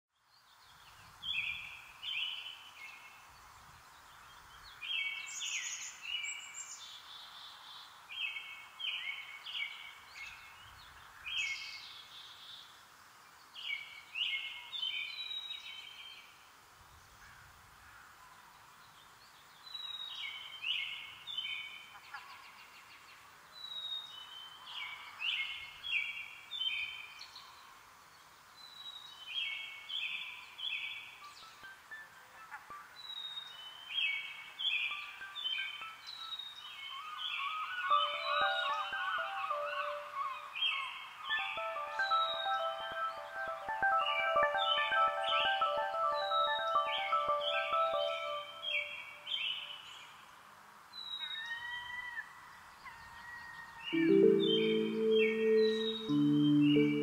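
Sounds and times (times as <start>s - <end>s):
songbird singing: 0.2s - 12.8s, 13.4s - 50.3s, 50.9s - 57.0s
faint steady hiss: 0.2s - 57.0s.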